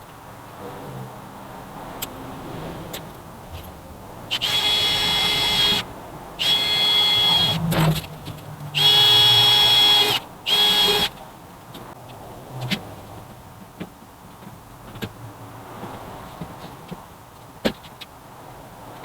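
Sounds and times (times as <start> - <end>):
electric drill whining: 4.3 - 7.7, 8.8 - 11.1.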